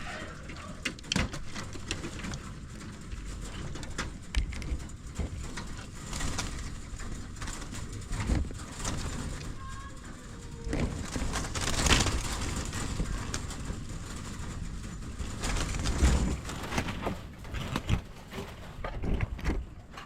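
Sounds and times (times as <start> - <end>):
poultry clucking: 0.0 - 1.0
irregular clicks and knocks: 0.5 - 20.0.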